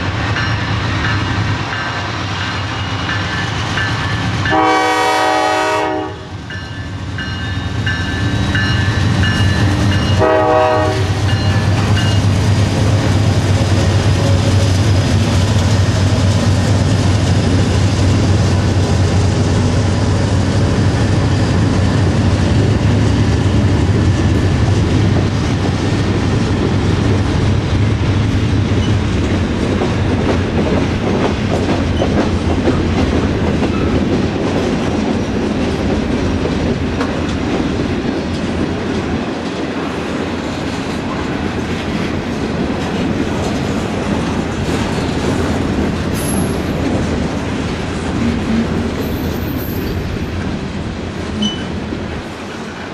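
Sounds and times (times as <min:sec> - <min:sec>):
locomotive rumble: 0:00.0 - 0:52.9
train horn blast: 0:04.4 - 0:06.4, 0:10.0 - 0:11.6.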